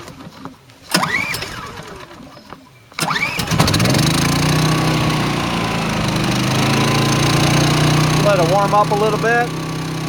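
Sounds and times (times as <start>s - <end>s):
recoil starter rope pull: 0.9s - 2.3s, 3.0s - 10.0s
generator engine running: 0.9s - 2.4s, 3.0s - 10.0s.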